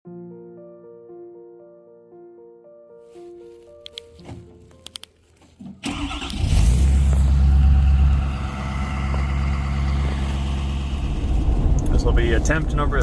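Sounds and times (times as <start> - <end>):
road noise: 4.9 - 13.0
pickup truck engine running: 5.9 - 12.9.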